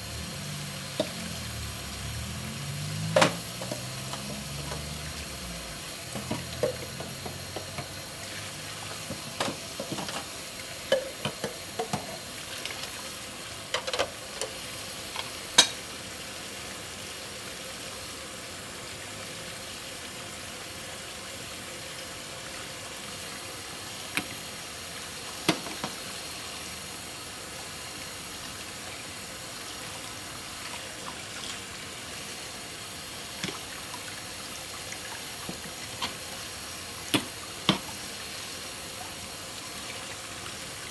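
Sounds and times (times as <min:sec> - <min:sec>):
tap running: 0:00.2 - 0:13.0, 0:35.4 - 0:38.2
dishes clinking: 0:06.2 - 0:07.9, 0:10.9 - 0:12.2.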